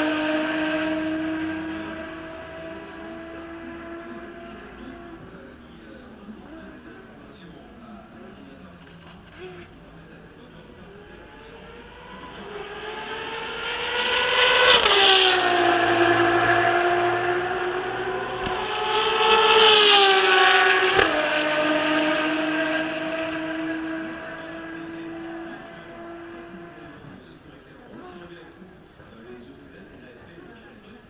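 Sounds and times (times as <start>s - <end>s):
race cars passing at speed: 0.0s - 8.6s, 9.4s - 31.0s.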